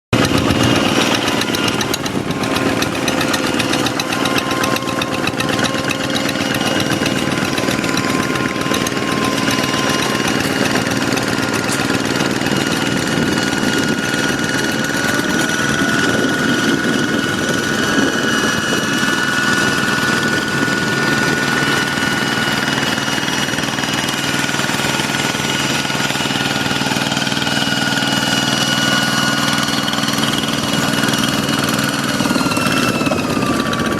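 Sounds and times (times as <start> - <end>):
diesel engine knocking: 0.0 - 33.9.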